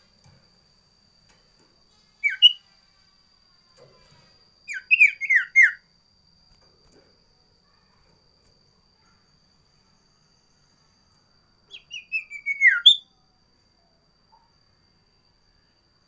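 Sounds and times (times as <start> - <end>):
faint steady high tone: 0.0 - 16.0
songbird whistling: 2.2 - 2.7, 4.7 - 5.8, 11.7 - 13.1.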